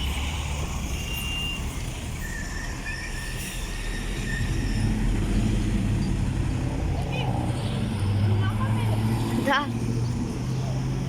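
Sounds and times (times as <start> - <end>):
truck engine passing: 4.2 - 11.0.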